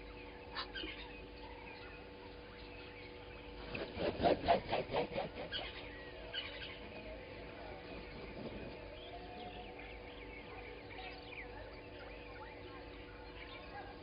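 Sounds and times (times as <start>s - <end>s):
bird chirps: 4.8s - 14.0s.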